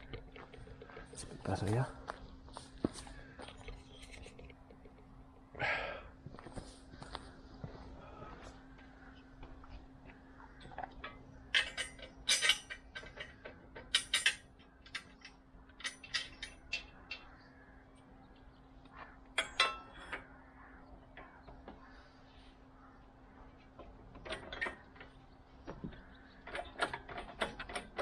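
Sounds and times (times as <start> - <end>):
faint steady hum: 0.0 - 27.8
metal tools clinking: 11.0 - 17.2, 19.4 - 20.2.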